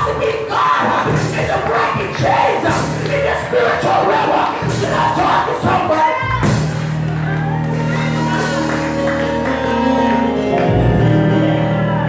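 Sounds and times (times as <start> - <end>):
organ chords: 6.4 - 12.0.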